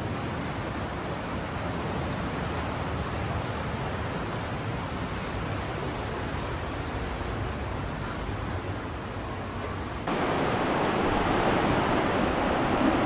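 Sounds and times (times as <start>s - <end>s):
river rushing through a gorge: 0.0s - 8.0s.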